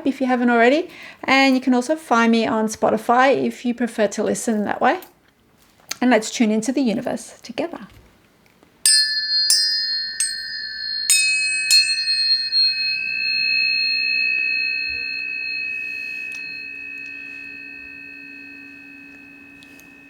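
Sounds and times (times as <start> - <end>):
tuning forks ringing: 8.8 - 20.0.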